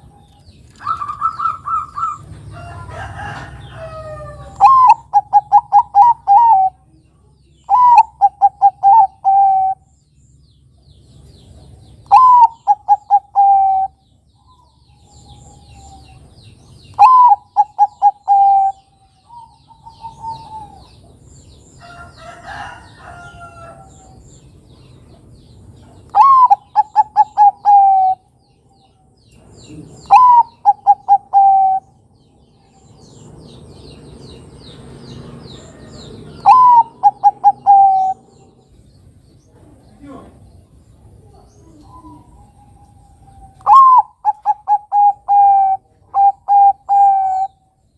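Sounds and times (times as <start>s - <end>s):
small birds chirping: 0.0s - 47.9s
dove cooing: 0.8s - 2.3s, 3.2s - 6.9s, 7.7s - 9.8s, 12.1s - 16.3s, 16.9s - 21.1s, 25.8s - 28.3s, 29.6s - 32.0s, 35.8s - 38.6s, 41.2s - 47.6s.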